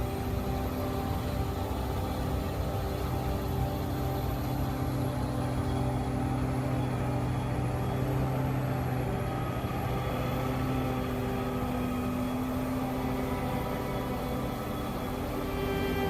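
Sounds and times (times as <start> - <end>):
snow blower engine drone: 0.0 - 16.0.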